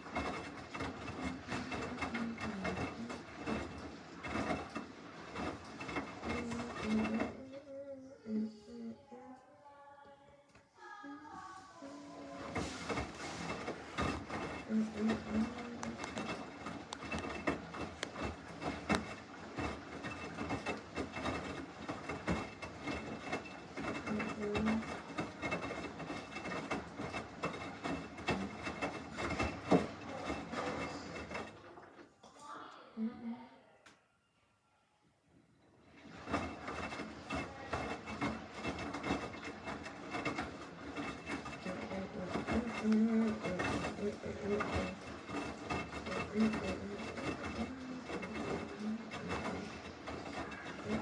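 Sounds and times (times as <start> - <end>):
washing machine drum sloshing: 0.0 - 7.6, 11.4 - 32.1, 35.7 - 51.0
washing machine load knocking: 12.4 - 31.8.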